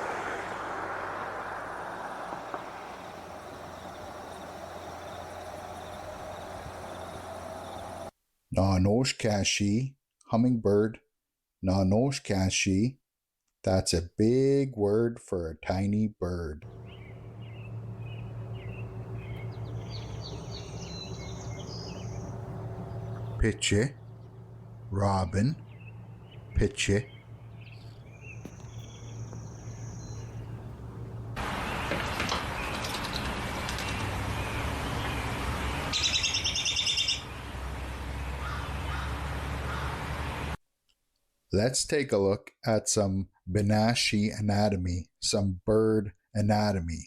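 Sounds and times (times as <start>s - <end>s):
outdoor background noise: 0.0s - 8.1s, 16.6s - 41.0s
steady low hum: 1.7s - 8.1s, 16.7s - 31.4s
hummingbird chirping: 1.8s - 8.1s, 16.7s - 32.0s, 33.8s - 39.1s.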